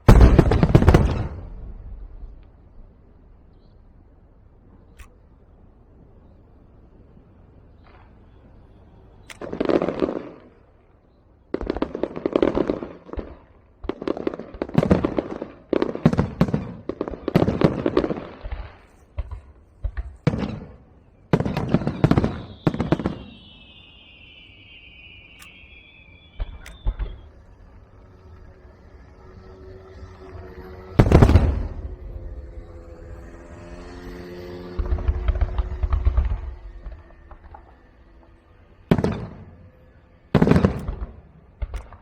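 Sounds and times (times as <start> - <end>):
fireworks crackling bangs: 0.0 - 2.8, 9.2 - 10.8, 11.5 - 42.0
falling whistle: 21.9 - 28.0.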